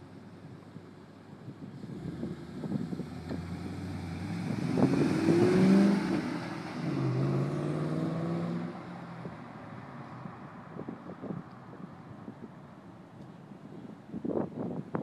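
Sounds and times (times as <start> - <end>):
car engine accelerating: 1.8 - 10.5.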